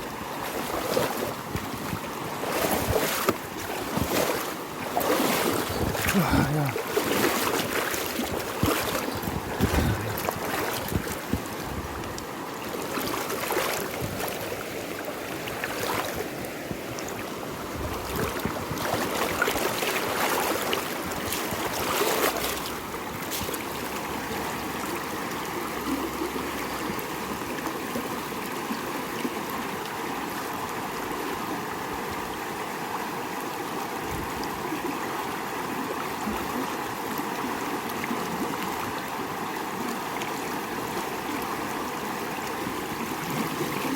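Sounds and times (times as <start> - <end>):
river water rushing: 0.0 - 43.9
knocks or splashes: 0.4 - 11.5.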